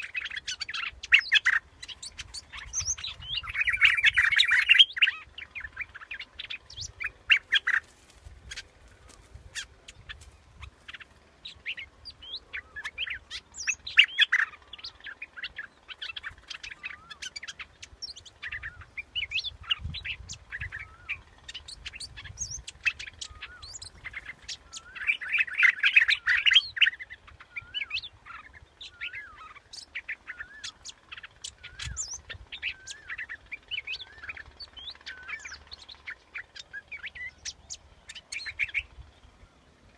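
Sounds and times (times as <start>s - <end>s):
bird chirping and whistling: 0.0s - 7.8s, 31.4s - 35.6s.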